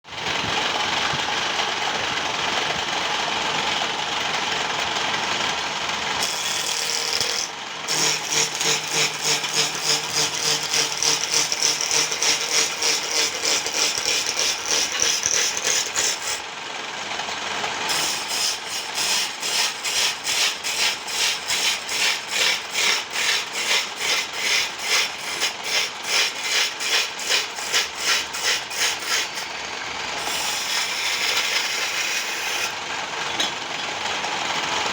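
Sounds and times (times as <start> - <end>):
wood lathe cutting wood: 5.8 - 16.7, 17.8 - 32.9.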